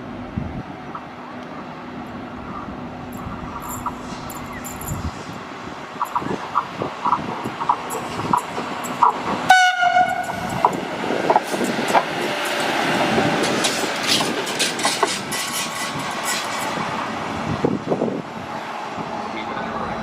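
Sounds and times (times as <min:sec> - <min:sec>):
wheels clicking over rail joints: 0:03.1 - 0:17.0
train horn blast: 0:09.5 - 0:10.5.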